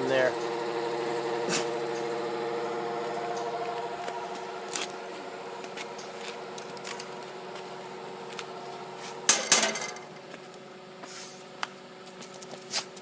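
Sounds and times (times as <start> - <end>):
gate motor whining: 0.0 - 10.2
sharp metallic clanks: 9.3 - 10.1.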